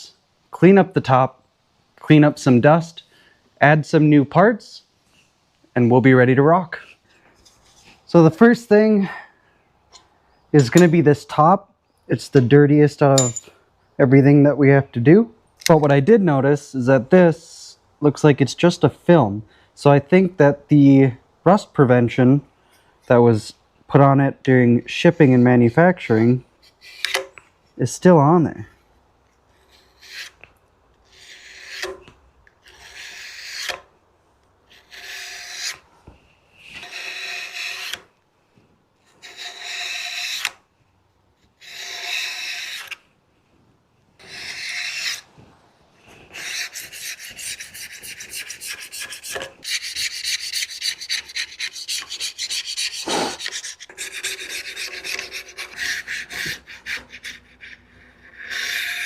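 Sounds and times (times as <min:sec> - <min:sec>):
hand scrubbing cast-iron table: 0:46.2 - 0:57.7.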